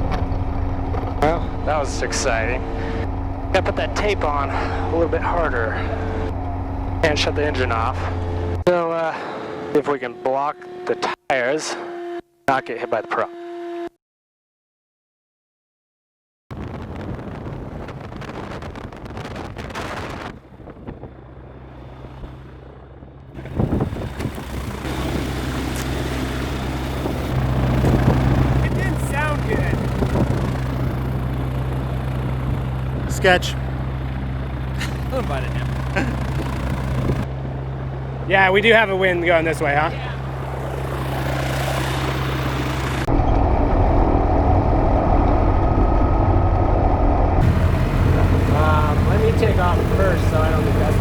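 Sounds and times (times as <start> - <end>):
propeller plane engine idling: 0.0 - 8.6, 20.6 - 51.0
plane piston engine idling: 23.4 - 37.3, 47.4 - 51.0.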